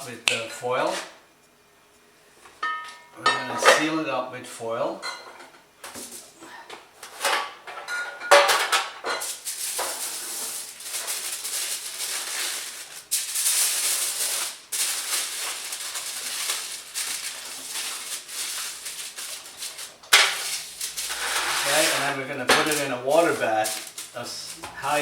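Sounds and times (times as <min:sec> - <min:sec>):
aluminium foil crinkling: 0:08.6 - 0:25.0.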